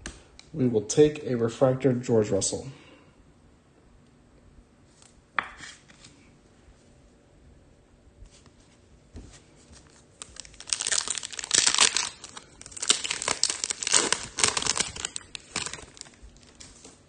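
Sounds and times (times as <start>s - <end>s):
foil wrapper tearing and crinkling: 10.2s - 17.0s.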